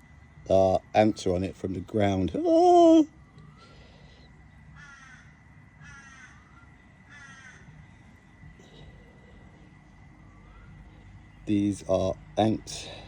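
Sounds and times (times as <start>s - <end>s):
crow cawing: 4.7s - 8.0s.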